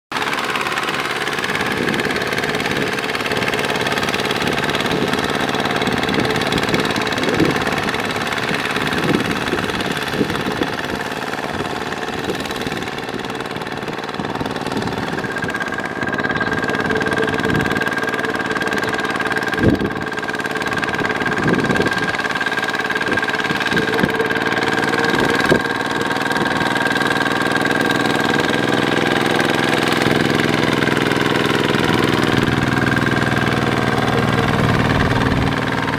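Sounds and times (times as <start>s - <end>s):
diesel tractor engine running: 0.1s - 35.9s
steady high whine: 23.5s - 35.9s.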